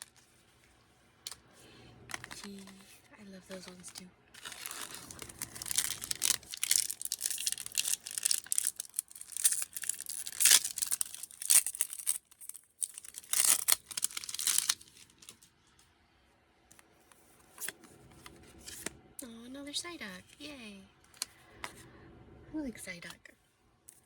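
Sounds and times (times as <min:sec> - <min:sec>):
wrappers tearing and crinkling: 0:02.1 - 0:02.9, 0:03.5 - 0:15.5.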